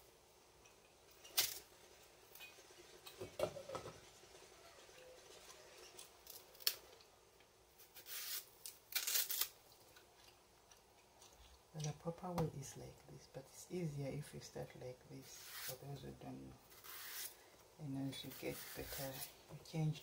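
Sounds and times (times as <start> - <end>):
knife cutting and scraping peel: 7.8 - 9.6, 15.2 - 15.8, 16.7 - 17.4, 18.2 - 19.4.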